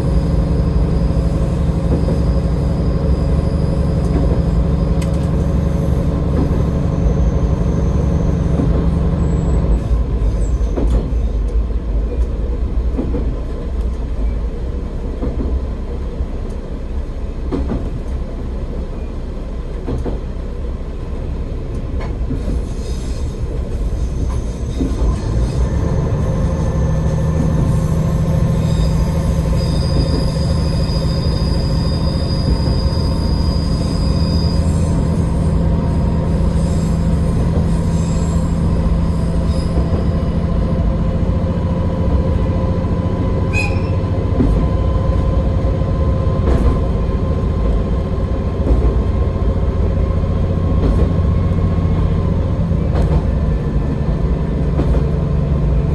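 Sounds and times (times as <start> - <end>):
high wheel squeal: 0.0 - 11.4, 22.4 - 40.5, 43.0 - 44.9
diesel railcar engine: 0.0 - 55.9.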